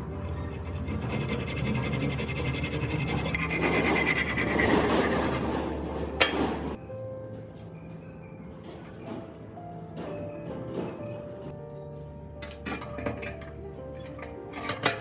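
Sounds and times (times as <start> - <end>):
file rasping by hand: 0.0 - 5.8.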